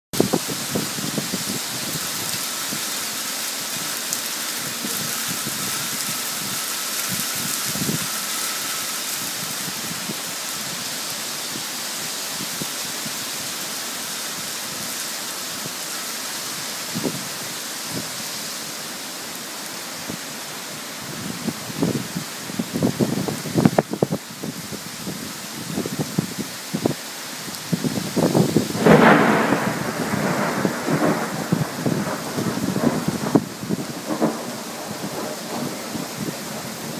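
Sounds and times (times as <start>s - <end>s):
heavy rain on foliage: 0.1s - 36.9s.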